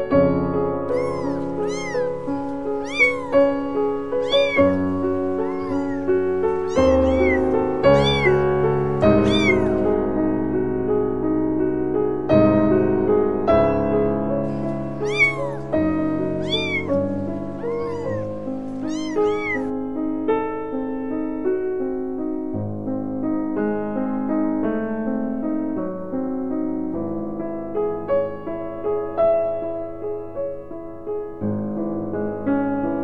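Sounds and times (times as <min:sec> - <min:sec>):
gentle piano music: 0:00.0 - 0:33.0
kitten meowing: 0:00.9 - 0:09.9, 0:13.5 - 0:19.7.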